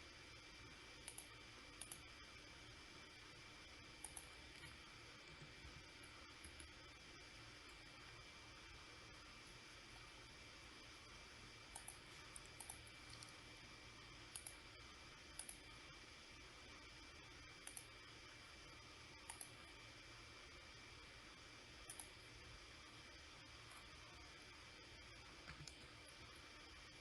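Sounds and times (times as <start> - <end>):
low steady background hiss: 0.0 - 27.0
computer mouse clicks: 1.0 - 2.1, 4.0 - 4.8, 6.4 - 6.8, 11.7 - 13.4, 14.3 - 14.6, 15.3 - 15.7, 17.6 - 17.9, 19.2 - 19.6, 21.8 - 22.2, 25.4 - 26.0.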